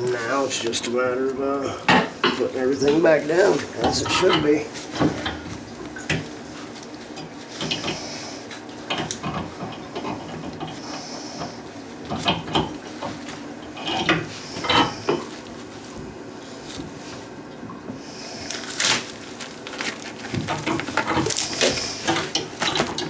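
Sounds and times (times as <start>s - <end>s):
toilet parts knocking and scraping: 1.9s - 6.2s, 8.9s - 10.8s, 20.2s - 23.0s.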